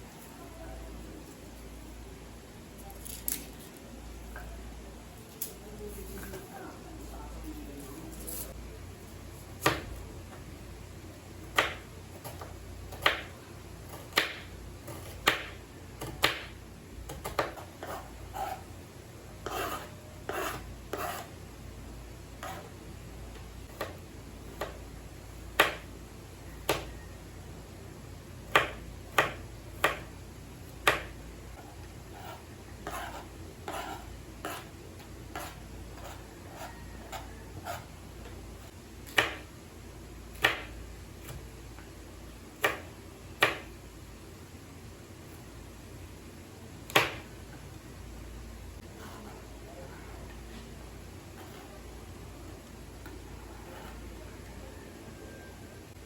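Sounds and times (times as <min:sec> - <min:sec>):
knife chopping on cutting board: 0:09.6 - 0:10.0, 0:11.5 - 0:13.3, 0:13.9 - 0:18.6, 0:25.6 - 0:25.9, 0:26.6 - 0:26.9, 0:28.5 - 0:30.1, 0:30.8 - 0:31.1, 0:39.1 - 0:39.5, 0:42.6 - 0:43.7.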